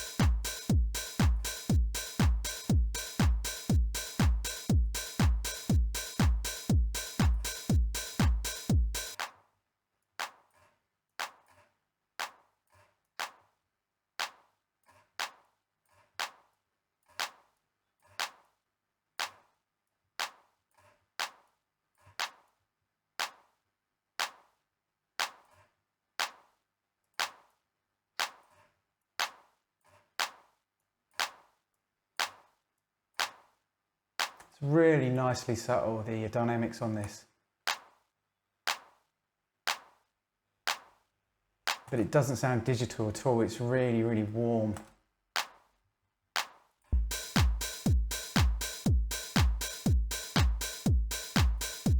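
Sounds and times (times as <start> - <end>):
drum machine hits: 0.0 - 9.3, 47.0 - 51.9.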